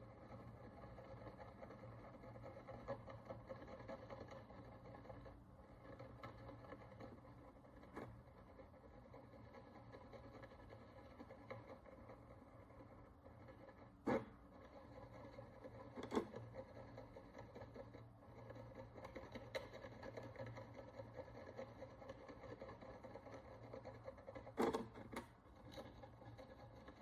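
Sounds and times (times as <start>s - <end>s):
tool scratching a coin: 0.0s - 27.0s.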